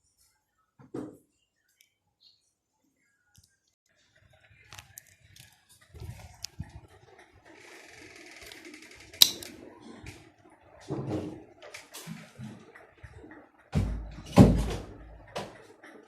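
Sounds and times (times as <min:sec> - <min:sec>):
sharp click: 0:09.2 - 0:09.5.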